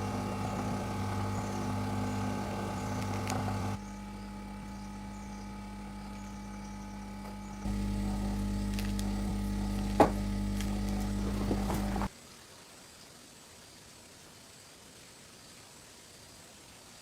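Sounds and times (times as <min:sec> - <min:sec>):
motor humming: 0:00.0 - 0:12.1.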